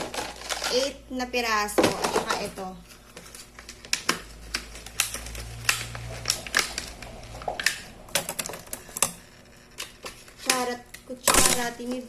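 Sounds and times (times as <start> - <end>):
plastic toy pieces clattering: 0.0 - 1.0.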